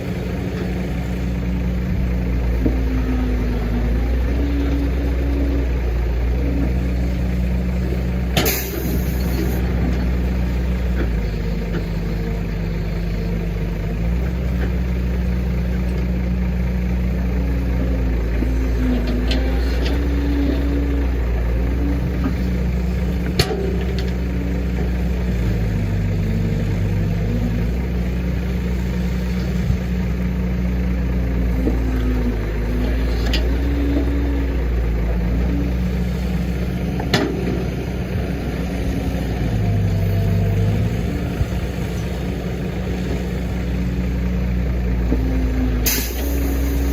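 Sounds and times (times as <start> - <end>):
hydraulic whine: 0.0 - 13.8, 31.6 - 46.9
excavator diesel engine running: 0.0 - 46.9.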